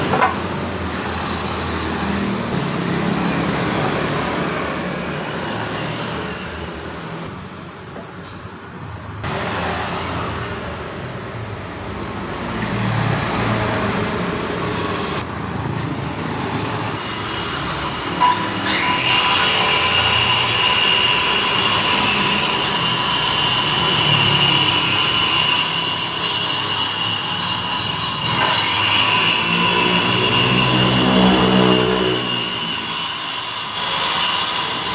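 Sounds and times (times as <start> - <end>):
workshop noise: 0.0 - 34.9
circular saw motor whining: 17.2 - 34.9.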